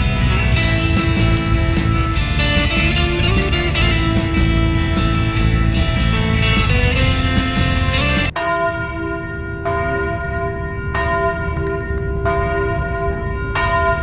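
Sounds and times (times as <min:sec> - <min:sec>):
guitar music: 0:00.0 - 0:09.0
large bell tolling: 0:00.0 - 0:14.0.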